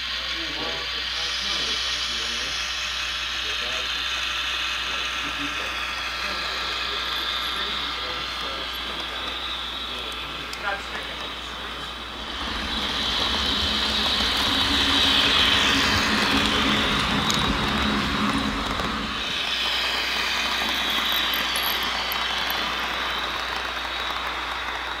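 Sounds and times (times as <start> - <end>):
model train humming and hissing: 0.0 - 25.0
wheels rolling on rails: 7.4 - 25.0.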